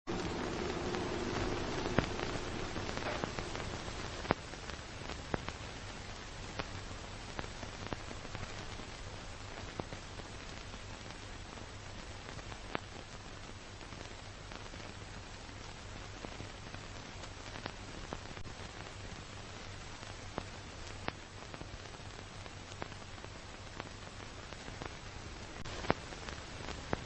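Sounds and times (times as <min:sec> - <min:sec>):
low hum: 0:00.1 - 0:04.4.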